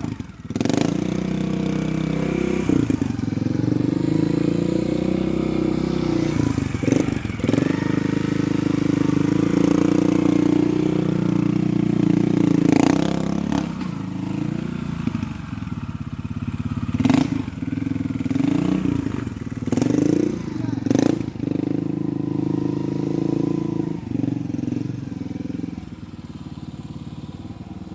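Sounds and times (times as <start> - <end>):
motorcycle engine revving: 0.0 - 27.9
knocks and clatters from motorcycle: 12.4 - 21.3.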